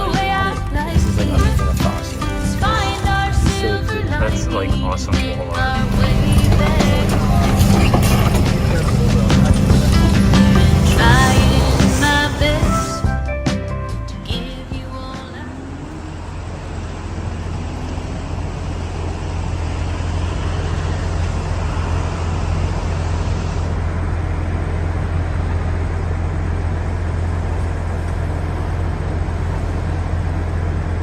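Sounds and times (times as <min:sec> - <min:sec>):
motor vehicle running: 0:00.0 - 0:31.0
rushing noise: 0:05.1 - 0:13.2, 0:15.2 - 0:27.4.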